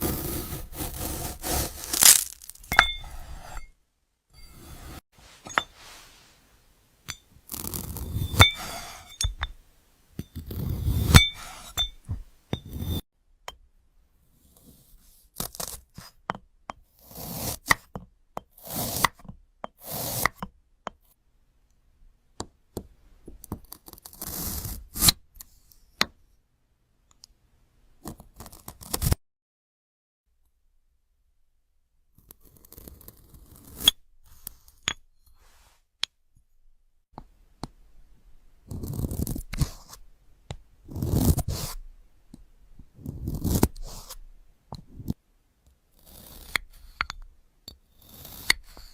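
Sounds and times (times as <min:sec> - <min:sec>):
blade cutting crisp fruit: 0:00.0 - 0:03.5
sharp clicks and clinks: 0:01.9 - 0:03.2.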